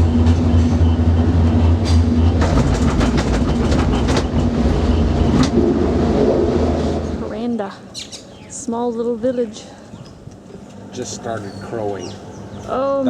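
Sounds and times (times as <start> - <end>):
cable car low hum: 0.0 - 13.0
rapid clacks over rollers: 2.4 - 5.7.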